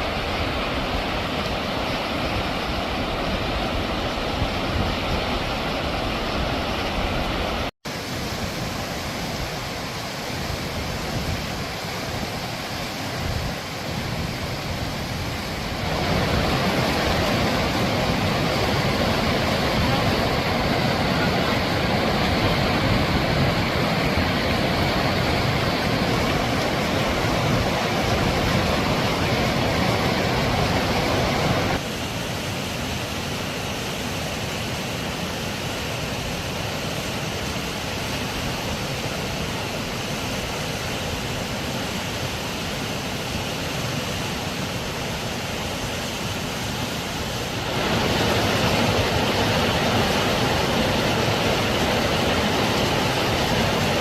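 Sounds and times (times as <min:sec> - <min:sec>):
rushing river water: 0:00.0 - 0:54.0.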